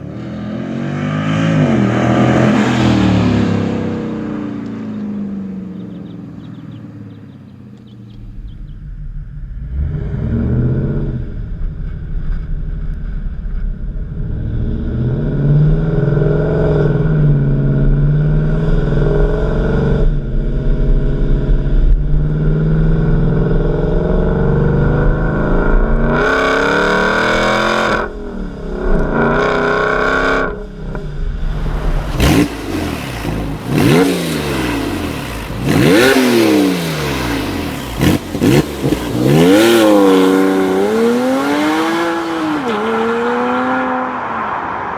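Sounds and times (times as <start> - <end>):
car engine revving: 0.0 - 11.9, 22.1 - 44.8.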